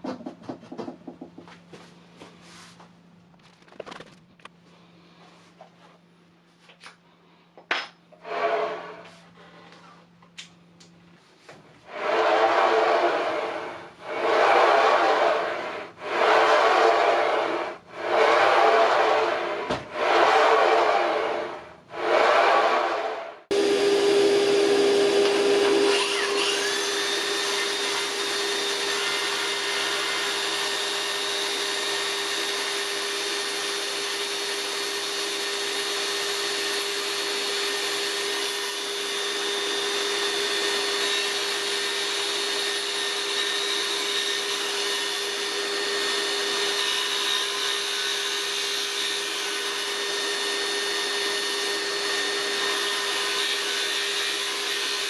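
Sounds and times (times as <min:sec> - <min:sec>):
circular saw motor whine: 0:11.9 - 0:55.0.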